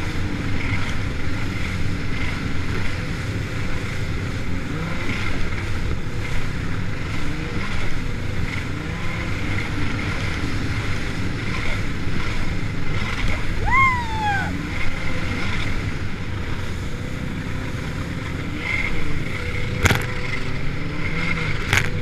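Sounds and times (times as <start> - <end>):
jet ski engine droning: 0.0 - 22.0
water rushing: 0.0 - 22.0
wind on microphone: 9.9 - 18.2.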